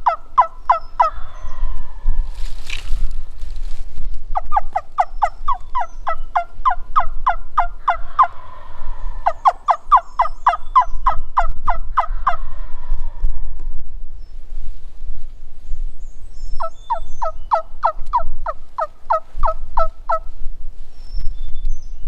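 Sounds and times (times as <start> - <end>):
turkey yelps: 0.0 - 1.8, 4.4 - 12.9.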